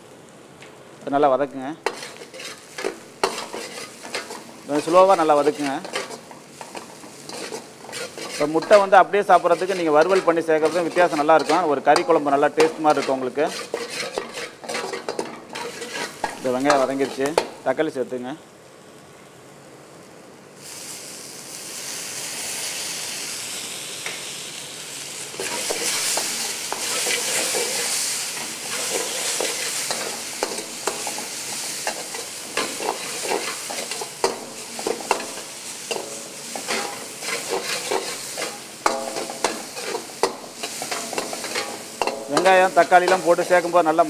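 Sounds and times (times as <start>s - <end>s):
tomatoes sizzling in hot oil: 0.0s - 44.0s
steel ladle scraping a pan: 1.8s - 17.4s, 25.3s - 43.8s.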